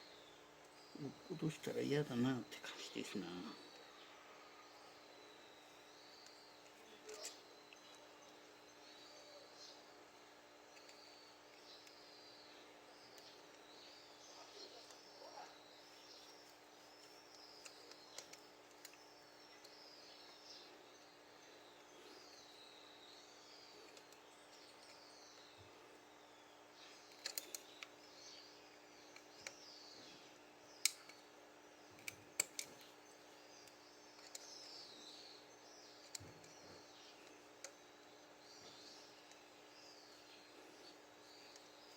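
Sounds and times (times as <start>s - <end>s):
faint bird song: 0.0s - 41.9s
low steady hum: 0.0s - 41.9s
sharp clicks: 16.4s - 21.1s, 27.0s - 28.0s, 30.8s - 31.2s, 31.9s - 33.0s.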